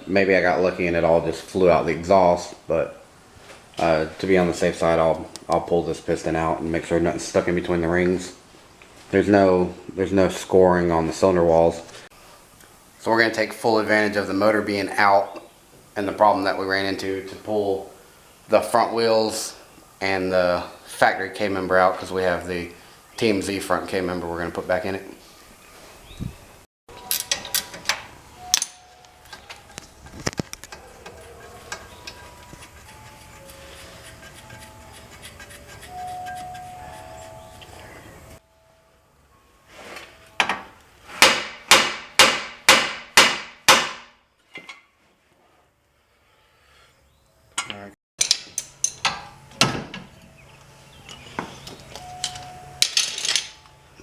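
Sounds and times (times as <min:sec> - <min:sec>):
metal tools clinking and knocking: 0:26.9 - 0:37.8, 0:47.6 - 0:49.7, 0:51.0 - 0:53.8.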